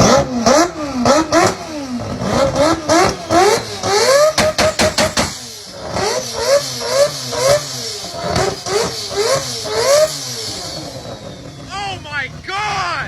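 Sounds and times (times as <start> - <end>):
rotary engine revving in blips: 0.0 - 12.8
sharp exhaust pops: 1.0 - 6.0.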